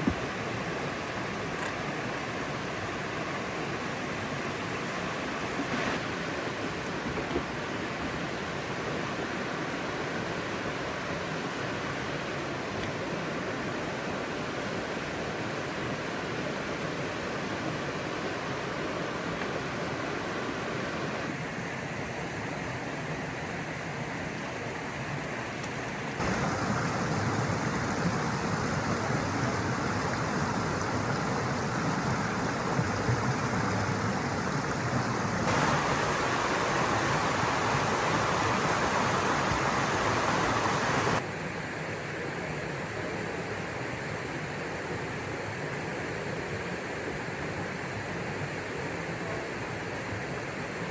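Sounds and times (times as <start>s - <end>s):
rushing water: 0.0s - 12.7s, 26.2s - 41.2s.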